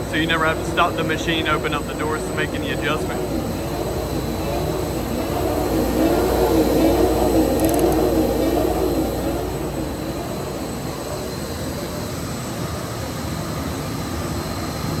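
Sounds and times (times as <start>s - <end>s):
machine motors whirring: 0.3s - 11.7s.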